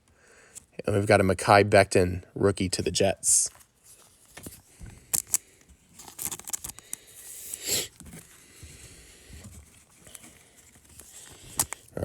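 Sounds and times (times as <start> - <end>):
cards scraping and rustling: 3.4 - 12.0
card packaging clicks: 4.4 - 7.1, 11.0 - 12.0.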